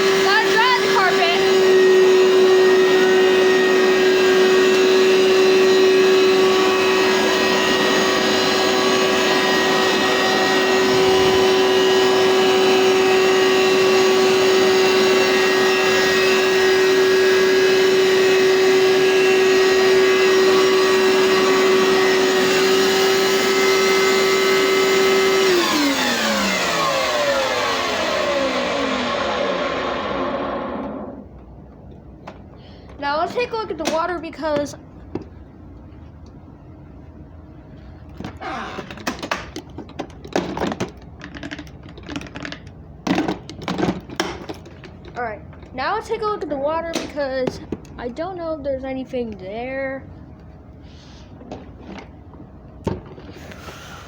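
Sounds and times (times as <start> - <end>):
carpet cleaner motor whining: 0.0 - 31.4, 38.1 - 47.1
motor winding down: 0.0 - 31.4.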